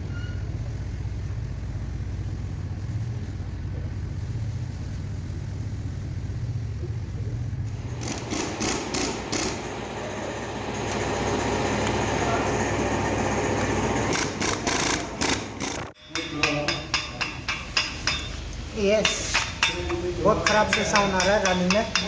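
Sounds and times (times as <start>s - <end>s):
engine bursts: 0.0s - 16.0s
engine idling: 0.5s - 16.0s.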